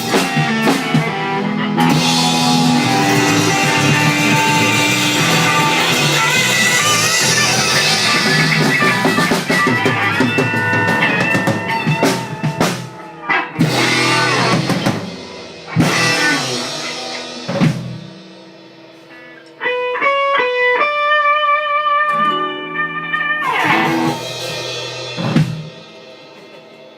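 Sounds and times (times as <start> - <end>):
ringing guitar notes: 0.0 - 15.0, 19.6 - 24.5
band accented hits: 0.0 - 19.0, 23.4 - 26.7
rock band playing: 0.0 - 26.9.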